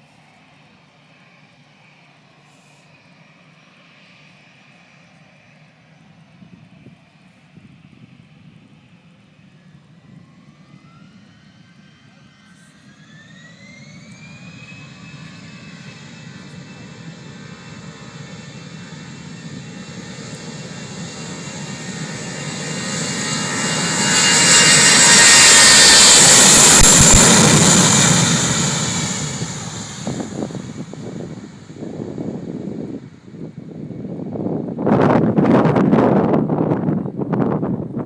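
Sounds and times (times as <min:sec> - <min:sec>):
jet engines spooling up: 0:09.7 - 0:36.8.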